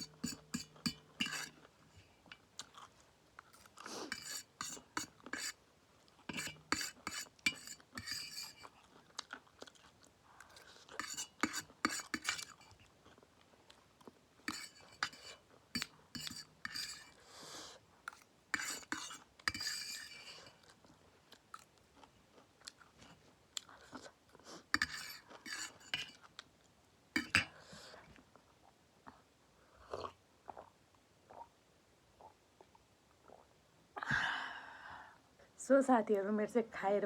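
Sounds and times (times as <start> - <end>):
utensils clinking on a dish: 0.0 - 1.6, 4.1 - 5.5, 6.3 - 8.6, 11.0 - 12.8, 14.5 - 17.1, 18.1 - 20.4, 24.8 - 26.1, 27.2 - 27.5
chewing crunchy food: 2.3 - 4.1, 8.6 - 11.0, 12.6 - 14.2, 20.3 - 24.6.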